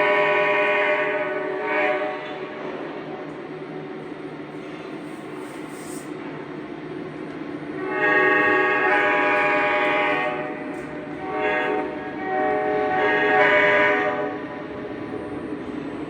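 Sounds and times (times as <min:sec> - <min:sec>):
model train whistle: 0:00.0 - 0:02.4, 0:07.8 - 0:10.6, 0:11.2 - 0:14.4
model train running noise: 0:04.0 - 0:16.0.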